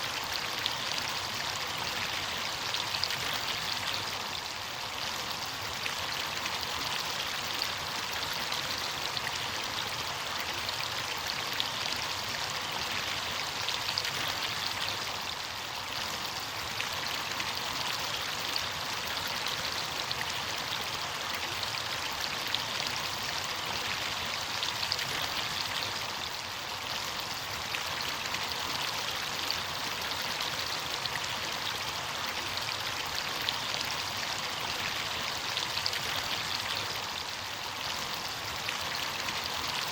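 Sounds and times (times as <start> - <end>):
stream water rushing and splashing: 0.0 - 39.9.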